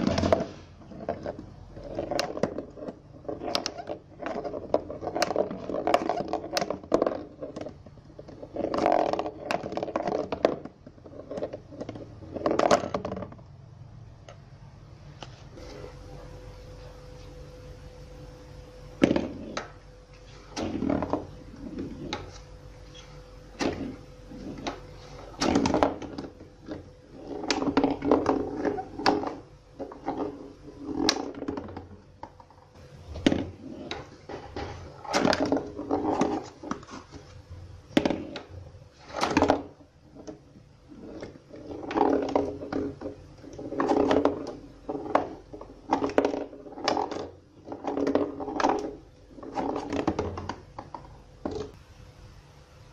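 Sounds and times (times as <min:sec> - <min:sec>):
ball knocking cardboard walls: 0:00.0 - 0:13.5, 0:19.0 - 0:37.3, 0:37.9 - 0:40.4, 0:41.0 - 0:51.8
ball rolling on cardboard: 0:00.0 - 0:13.6, 0:15.2 - 0:51.8.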